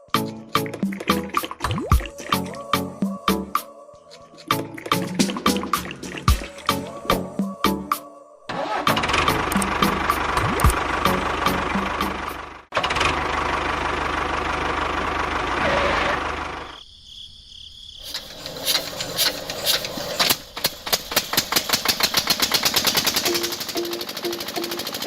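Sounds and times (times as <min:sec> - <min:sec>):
small engine running: 0:08.5 - 0:16.8, 0:18.1 - 0:25.0.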